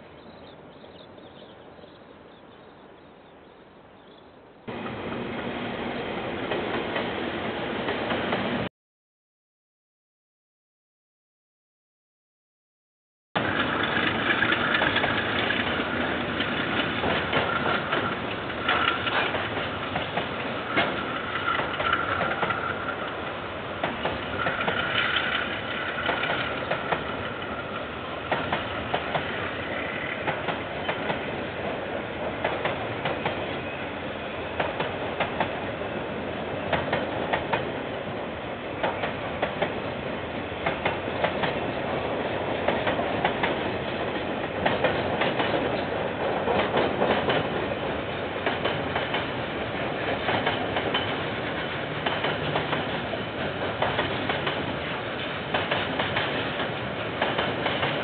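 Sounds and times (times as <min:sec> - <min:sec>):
train wheels clattering over rail joints: 0:13.4 - 0:33.4, 0:40.6 - 0:58.0.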